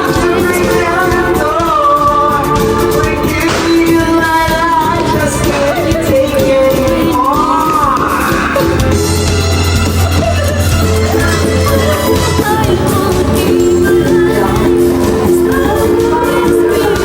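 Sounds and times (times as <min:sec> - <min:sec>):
pop song with vocals and band: 0:00.0 - 0:17.0.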